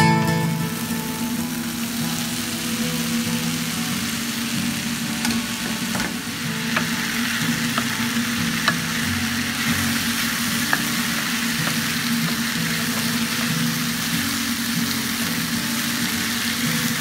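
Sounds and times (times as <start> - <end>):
beans sizzling in a frying pan: 0.0 - 17.0
spatula stirring: 6.7 - 14.1.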